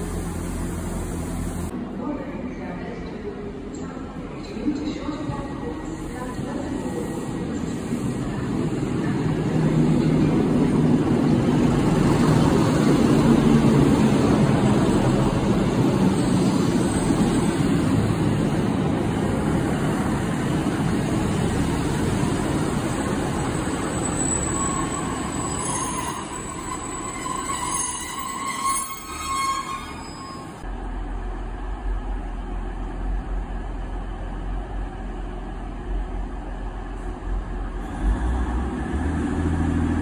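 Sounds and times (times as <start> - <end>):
train wheels and engine rumble: 0.0 - 40.0
brake squeal: 23.5 - 30.6.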